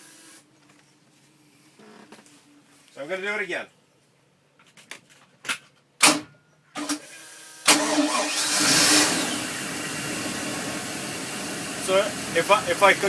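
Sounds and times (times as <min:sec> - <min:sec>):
boat engine starting and idling: 0:07.7 - 0:13.0.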